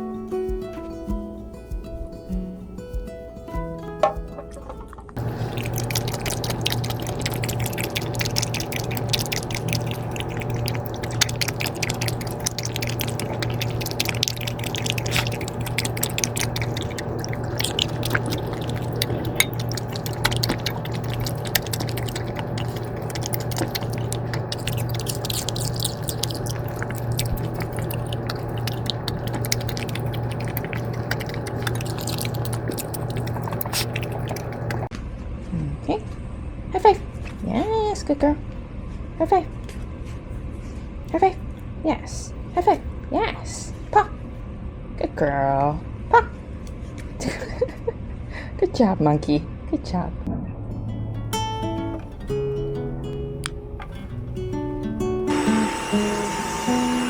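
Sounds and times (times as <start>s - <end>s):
low machine hum: 0.0s - 34.9s, 50.3s - 57.0s
irregular crackling and ticking: 0.5s - 34.9s.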